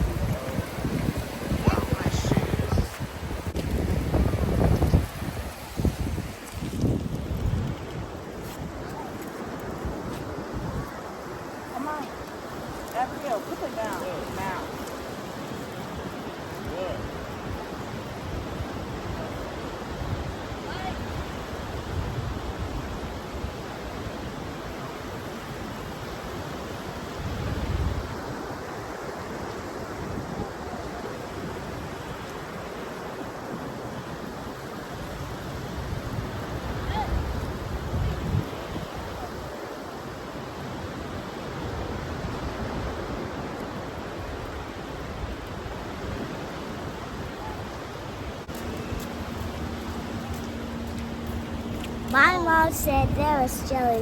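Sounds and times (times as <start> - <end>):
wind buffeting microphone: 0.0 - 23.5, 35.0 - 39.6, 41.6 - 54.0
ocean surf washing: 0.0 - 54.0.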